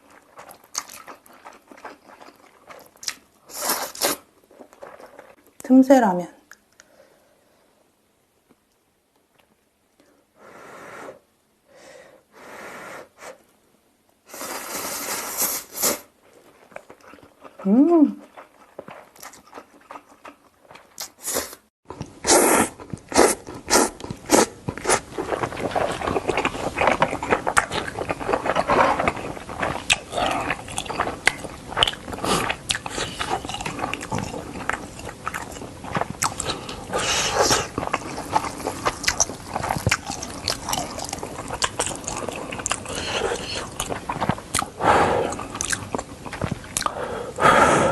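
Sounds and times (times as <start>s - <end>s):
wet chewing and smacking: 0.0s - 3.3s, 18.2s - 21.2s, 21.9s - 47.0s.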